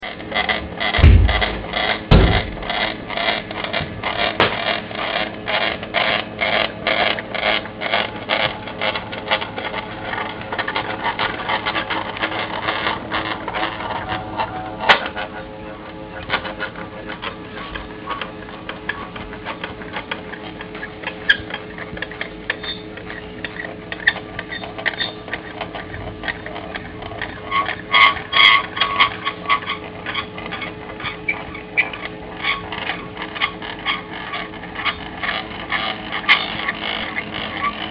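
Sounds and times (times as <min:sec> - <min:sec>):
stepper motor pulsing: 0:00.3 - 0:04.6.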